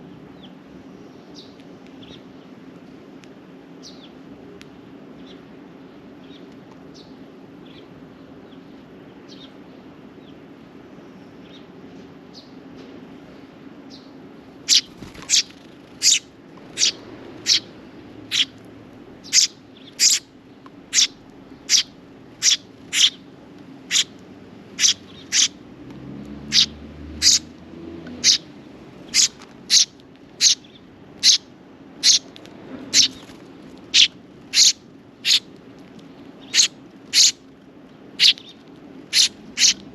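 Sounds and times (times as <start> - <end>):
sparrow chirping: 13.9 - 18.6, 19.2 - 20.3, 20.9 - 25.6, 26.4 - 27.5, 28.1 - 35.5, 36.4 - 37.4, 38.2 - 39.9.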